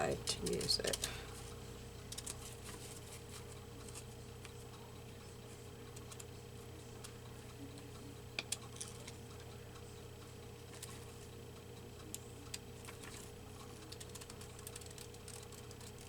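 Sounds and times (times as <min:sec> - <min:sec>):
steady low hum: 0:00.0 - 0:16.0
scissors snipping paper: 0:12.5 - 0:16.0.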